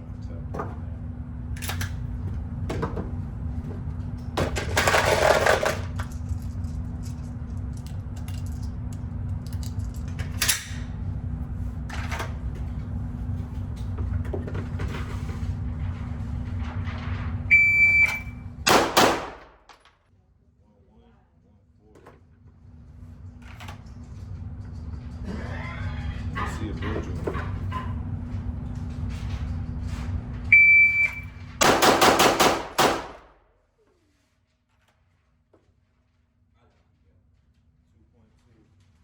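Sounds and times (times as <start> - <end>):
steady low hum: 0.0 - 39.0
shot timer beep: 17.5 - 18.4, 30.6 - 31.3
pistol fire: 18.7 - 19.7, 31.6 - 33.4.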